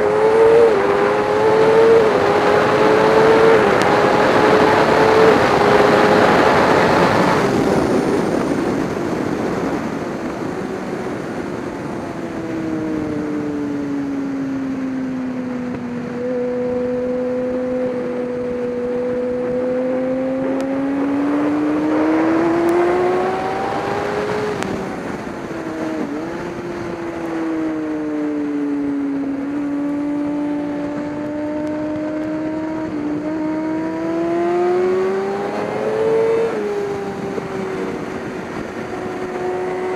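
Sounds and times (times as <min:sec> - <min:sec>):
race car engine revving: 0:00.0 - 0:08.3, 0:16.1 - 0:39.9.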